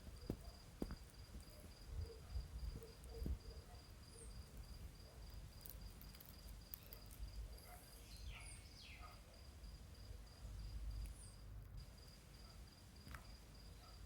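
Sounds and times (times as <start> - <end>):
soft thumps: 0.0 - 1.6
cricket chirping: 0.0 - 14.0.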